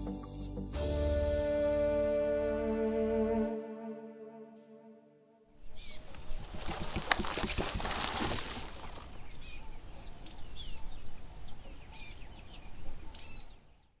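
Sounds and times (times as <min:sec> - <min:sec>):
outdoor background noise: 0:05.5 - 0:14.0
birds chirping: 0:05.6 - 0:14.0.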